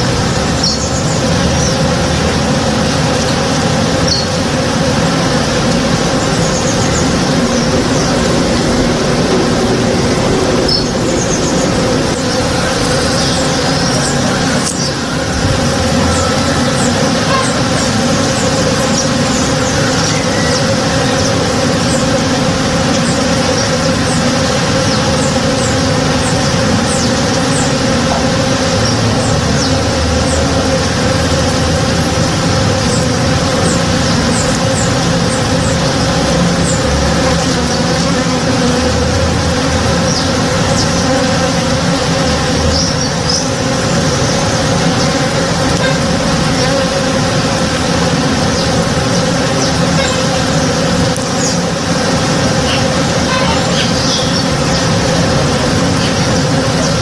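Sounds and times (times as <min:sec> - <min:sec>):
bees buzzing: 0:00.0 - 0:57.0.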